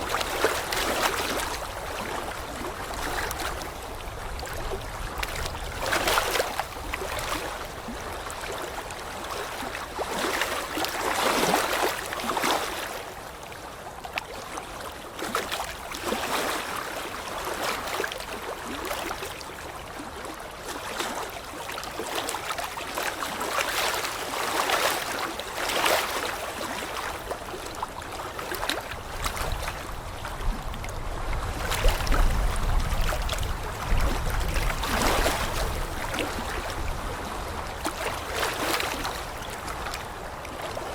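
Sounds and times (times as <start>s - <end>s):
water rushing: 22.2s - 40.9s.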